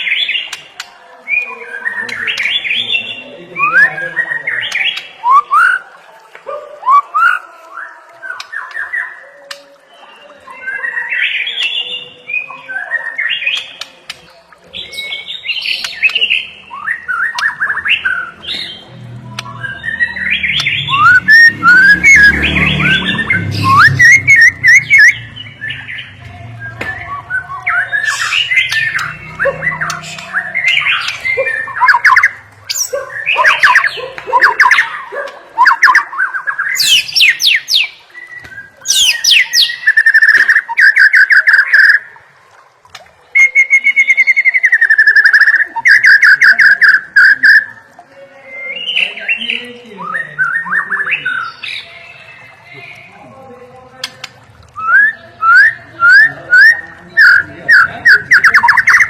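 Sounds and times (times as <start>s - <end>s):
songbird singing: 0.0s - 42.3s, 42.9s - 59.0s.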